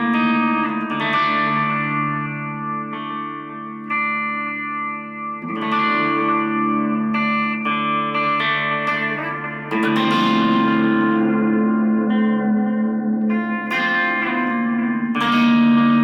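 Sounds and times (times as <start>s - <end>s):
distorted electric guitar chords: 0.0s - 16.0s.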